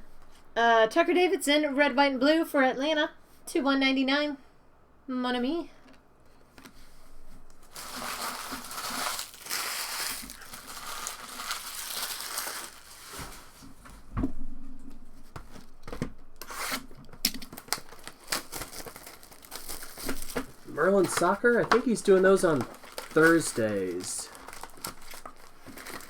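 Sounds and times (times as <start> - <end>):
wrappers crinkling and rustling: 7.3 - 13.8, 16.6 - 26.0.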